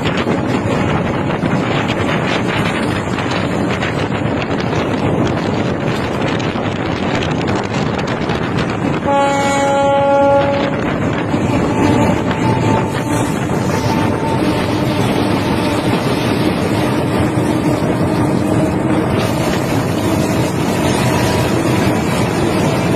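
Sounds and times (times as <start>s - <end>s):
train rumbling on rails: 0.0s - 22.9s
train horn blast: 8.9s - 21.7s.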